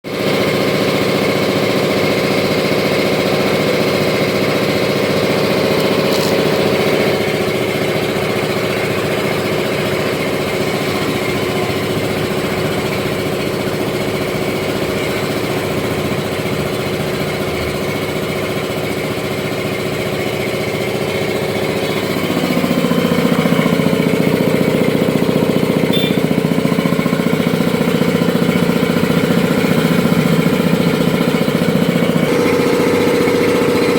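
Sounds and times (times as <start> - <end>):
air compressor running: 0.1 - 33.9.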